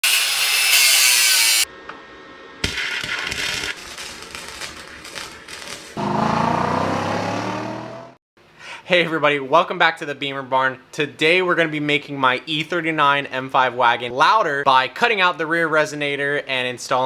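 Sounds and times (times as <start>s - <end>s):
power tool cutting metal: 0.0s - 1.7s
car engine exhaust revving: 6.0s - 8.2s.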